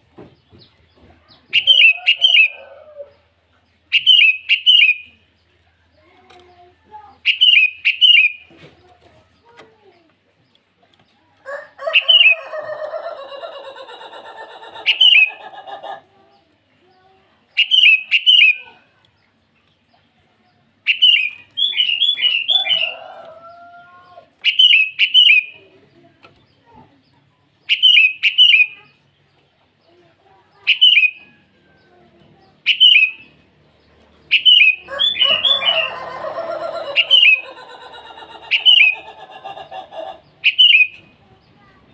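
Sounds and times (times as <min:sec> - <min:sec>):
bird chattering: 0:01.4 - 0:03.2, 0:03.9 - 0:05.2, 0:06.5 - 0:08.5, 0:11.8 - 0:16.2, 0:16.9 - 0:19.5, 0:20.8 - 0:23.3, 0:24.4 - 0:26.8, 0:27.6 - 0:29.2, 0:29.9 - 0:41.9
bulbul calling: 0:01.5 - 0:03.0, 0:03.9 - 0:05.2, 0:07.2 - 0:08.5, 0:17.6 - 0:18.7, 0:24.4 - 0:25.6, 0:27.7 - 0:28.8, 0:30.6 - 0:31.4, 0:32.6 - 0:33.4, 0:34.3 - 0:41.1.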